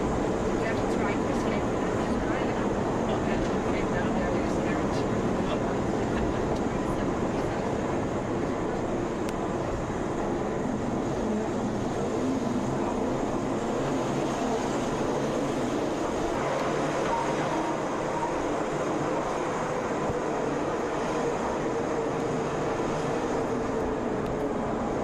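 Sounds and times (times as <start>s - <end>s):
train rumbling and rattling: 0.0s - 25.0s.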